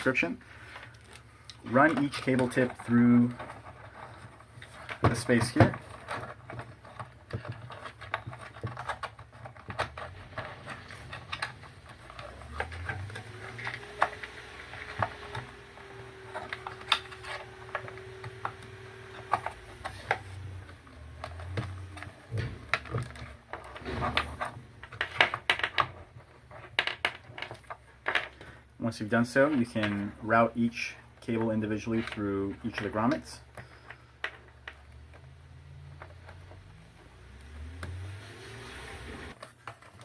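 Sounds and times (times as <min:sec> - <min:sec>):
plastic clicks and rattles: 0:00.7 - 0:28.6.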